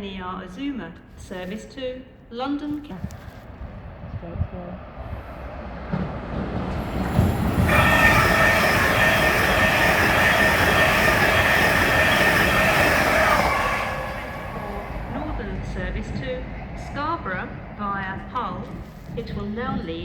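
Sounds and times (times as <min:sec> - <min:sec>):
train rumbling: 0:02.8 - 0:20.0
high-pitched metallic squeal: 0:07.5 - 0:15.2.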